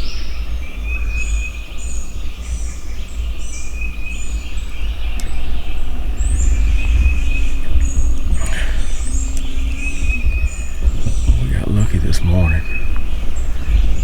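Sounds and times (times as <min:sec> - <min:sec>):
songbirds chirping and singing: 0:00.0 - 0:14.0
low rumble: 0:04.8 - 0:14.0.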